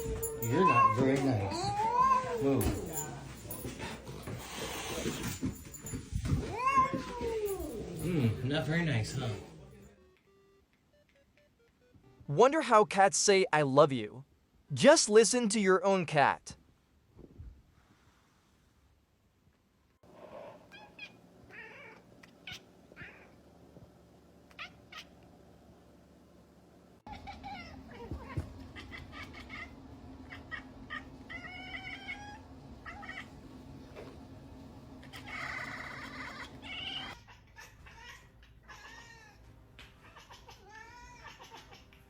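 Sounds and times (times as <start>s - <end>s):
cats meowing: 0.0s - 3.1s, 6.2s - 8.4s, 20.7s - 23.4s, 27.1s - 33.4s, 35.0s - 42.0s
background hum: 0.0s - 15.5s, 16.3s - 42.0s.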